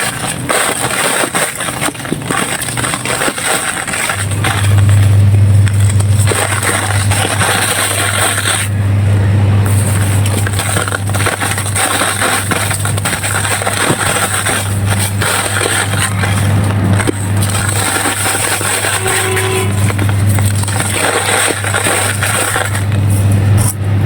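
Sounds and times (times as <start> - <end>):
sand crunching and crackling: 0.0 - 8.7
steady low hum: 0.0 - 24.0.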